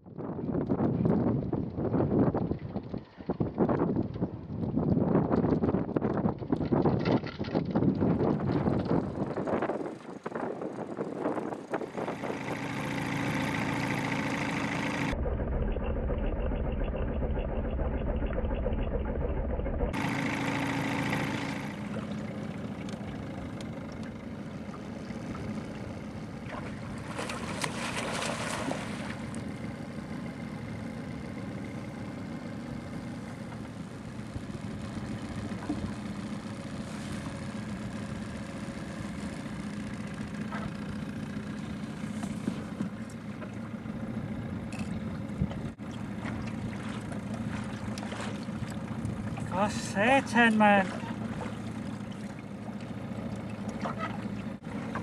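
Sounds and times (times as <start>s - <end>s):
outboard motor humming: 0.0s - 55.0s.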